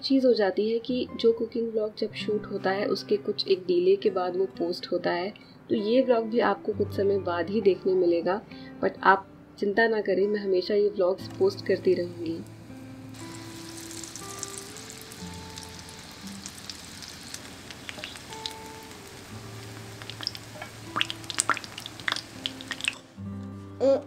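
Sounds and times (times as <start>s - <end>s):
soft background music: 0.0s - 24.0s
food sizzling in oil: 11.4s - 23.1s.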